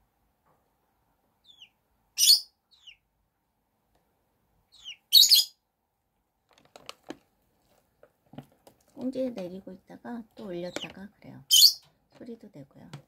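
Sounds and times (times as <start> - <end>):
chicken peeping: 1.4 - 3.1, 4.6 - 5.6, 10.4 - 11.0.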